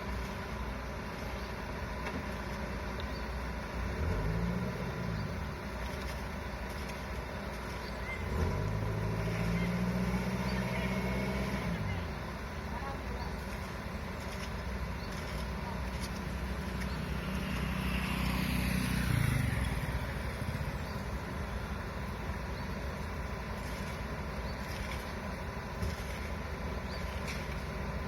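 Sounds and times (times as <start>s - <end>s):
low engine rumble: 0.0s - 28.0s
vehicle driving past: 8.2s - 12.1s, 16.2s - 21.7s.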